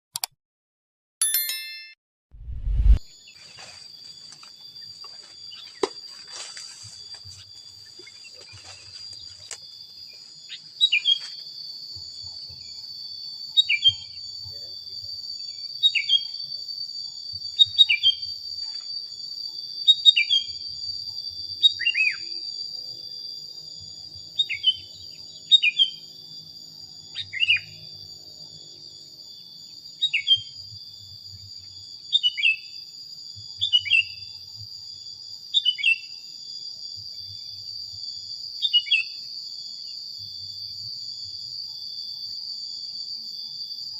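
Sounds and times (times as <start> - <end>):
high-pitched insect drone: 3.0 - 43.9
bird whistled calls: 21.6 - 22.3, 27.1 - 27.8, 30.0 - 30.5.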